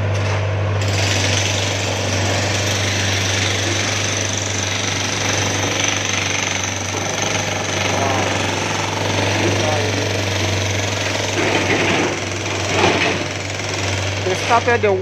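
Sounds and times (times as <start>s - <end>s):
jackhammer hammering pavement: 0.8s - 15.0s
steady low drone: 2.1s - 15.0s.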